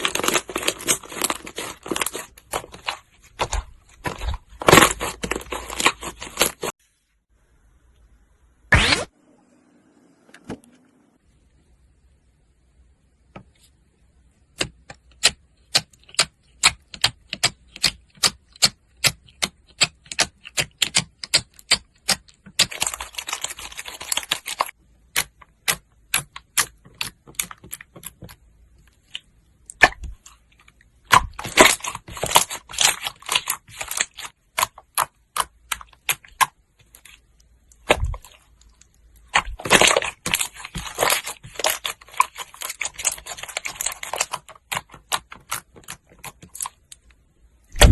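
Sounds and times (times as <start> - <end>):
slime popping and crackling: 0.0 - 6.7, 31.0 - 47.1.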